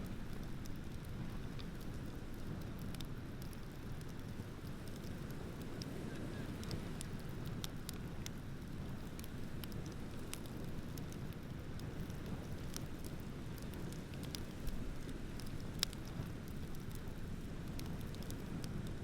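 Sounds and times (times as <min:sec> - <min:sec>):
sharp pops from fire: 0:00.0 - 0:19.0
wood bonfire crackling: 0:00.0 - 0:19.0.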